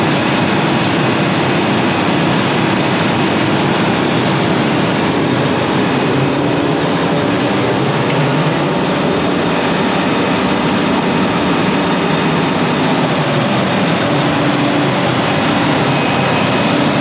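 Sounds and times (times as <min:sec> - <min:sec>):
large diesel engine running: 0:00.0 - 0:17.0.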